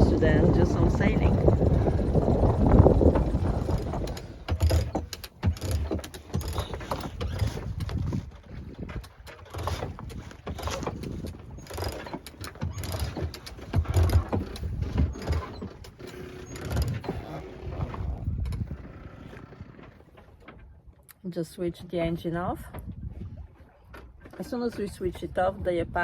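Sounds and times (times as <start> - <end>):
low thumps: 0.0 - 8.2
winch ratcheting clicks: 0.5 - 8.4, 9.0 - 19.4.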